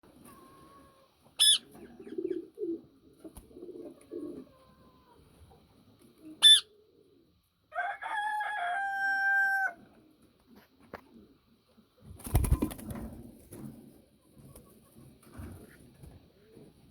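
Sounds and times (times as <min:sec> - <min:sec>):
long steady parakeet call: 0:00.6 - 0:02.4, 0:06.3 - 0:06.8
parakeet high shrieks: 0:01.4 - 0:01.7.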